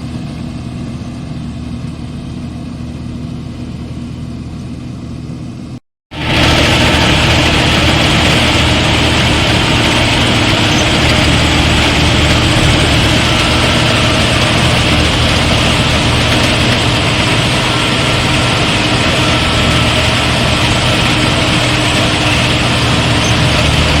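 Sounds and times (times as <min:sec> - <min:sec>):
combine harvester engine drone: 0:00.0 - 0:24.0
machinery rushing noise: 0:06.1 - 0:24.0.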